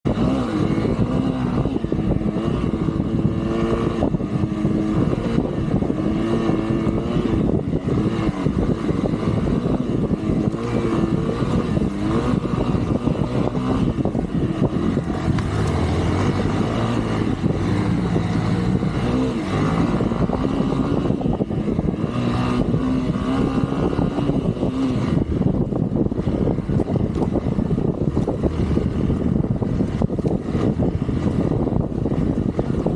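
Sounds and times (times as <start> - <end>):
off-road vehicle engine revving: 0.0 - 32.9
rumble of wind and terrain: 0.0 - 32.9.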